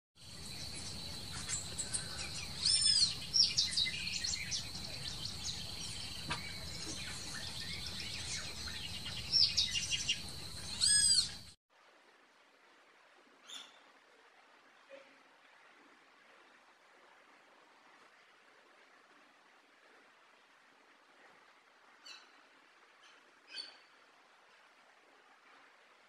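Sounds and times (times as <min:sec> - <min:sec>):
bird chirps: 0:00.2 - 0:11.5
loud rising and falling bird calls: 0:00.4 - 0:11.5.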